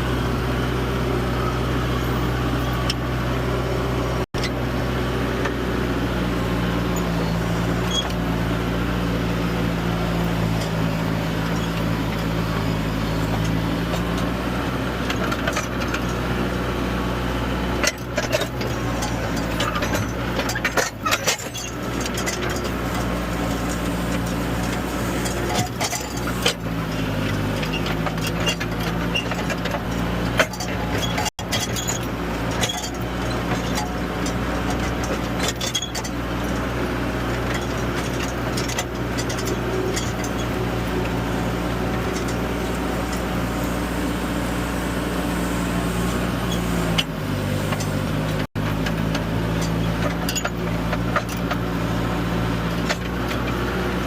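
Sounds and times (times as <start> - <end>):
loader diesel engine running: 0.0 - 54.0
knocks and rattles: 17.8 - 44.2.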